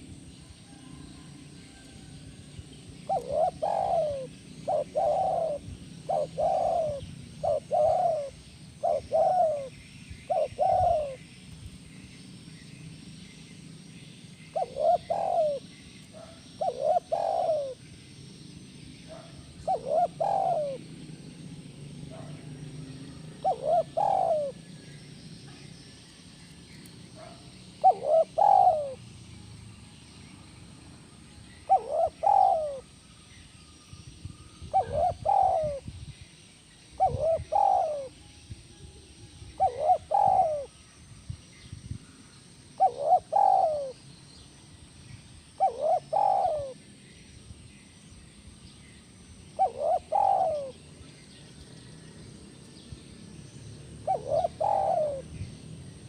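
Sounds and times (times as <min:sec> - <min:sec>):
dove cooing: 0:03.0 - 0:11.4, 0:14.4 - 0:17.9, 0:19.0 - 0:21.2, 0:22.0 - 0:24.8, 0:27.2 - 0:29.1, 0:31.6 - 0:33.0, 0:34.6 - 0:35.9, 0:36.9 - 0:38.2, 0:39.5 - 0:40.8, 0:42.8 - 0:44.0, 0:45.6 - 0:46.8, 0:49.5 - 0:50.8, 0:54.0 - 0:55.5.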